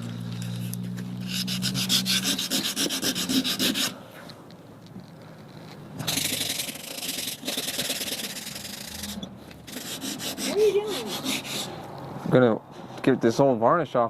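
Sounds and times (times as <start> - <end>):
sandpaper rubbing on wood: 1.2 - 4.0, 6.1 - 11.8.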